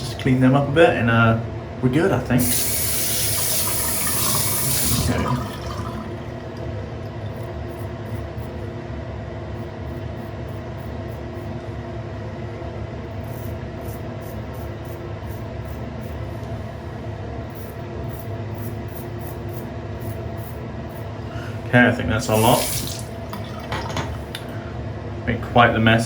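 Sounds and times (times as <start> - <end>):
steady low hum: 0.0 - 26.0
tap water running into sink: 2.4 - 6.6, 22.4 - 24.4.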